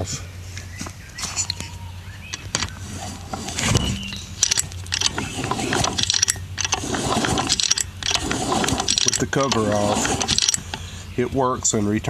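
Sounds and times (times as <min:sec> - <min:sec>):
metallic kickstart clicks and clatter: 0:04.4 - 0:10.8.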